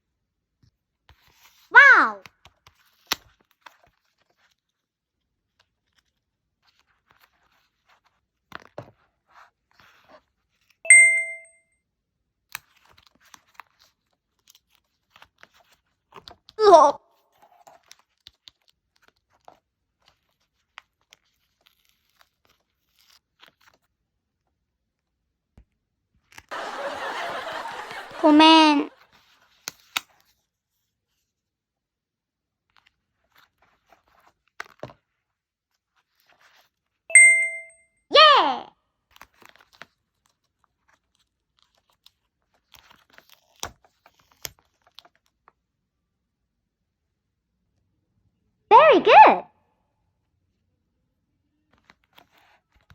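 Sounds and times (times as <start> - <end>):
paper rustling and crinkling: 12.6 - 16.5, 17.4 - 23.9, 32.7 - 37.0, 39.1 - 45.6, 51.7 - 52.9.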